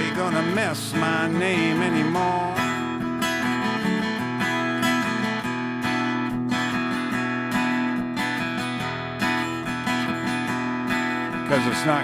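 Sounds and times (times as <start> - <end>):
person singing: 0.0 - 2.9
acoustic guitar strumming: 0.0 - 12.0.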